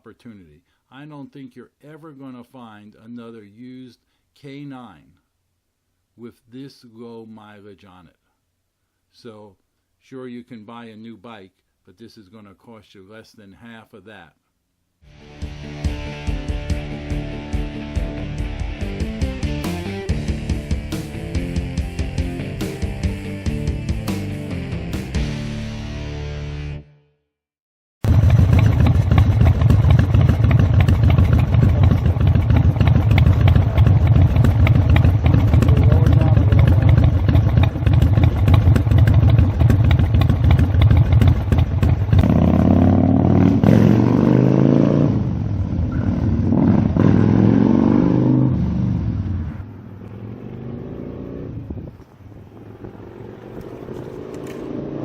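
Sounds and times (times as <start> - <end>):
motorcycle engine running: 28.0 - 49.0, 50.1 - 55.0.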